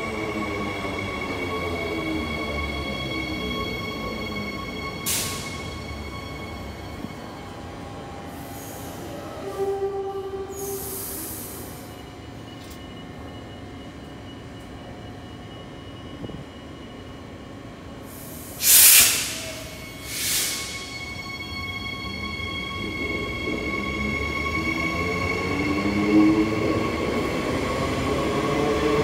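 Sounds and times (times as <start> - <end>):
train hum with whining tones: 0.0 - 29.0
loud hissing bursts: 18.1 - 21.0.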